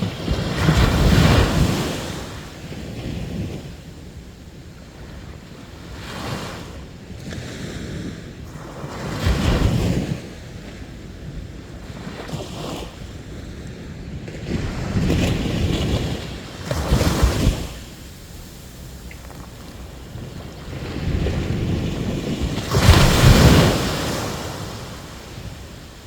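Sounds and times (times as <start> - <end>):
wind on microphone: 0.0 - 26.0
sea waves breaking: 11.8 - 26.0.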